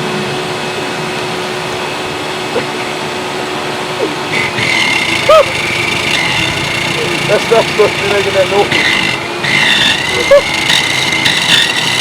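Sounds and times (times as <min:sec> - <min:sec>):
high whine: 0:00.0 - 0:12.0
vacuum cleaner humming: 0:00.0 - 0:12.0
sharp squeak: 0:08.7 - 0:12.0.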